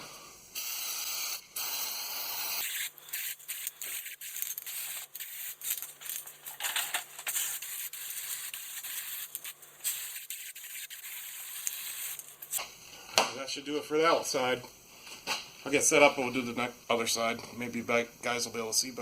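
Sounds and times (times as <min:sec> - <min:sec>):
aerosol can spraying: 0:02.6 - 0:06.3, 0:07.2 - 0:12.6.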